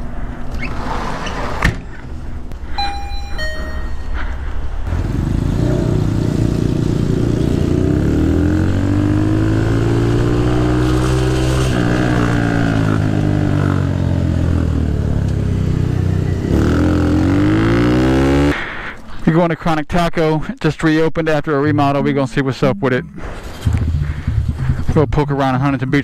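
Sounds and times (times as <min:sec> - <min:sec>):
motorcycle engine accelerating: 0:04.8 - 0:18.6, 0:23.2 - 0:25.2.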